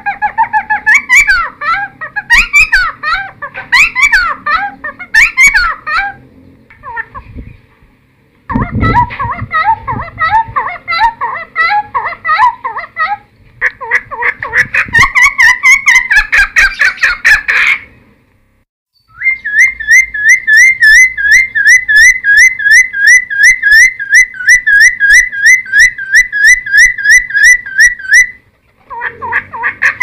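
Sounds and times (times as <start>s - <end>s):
bird singing whistled notes: 18.9s - 28.4s.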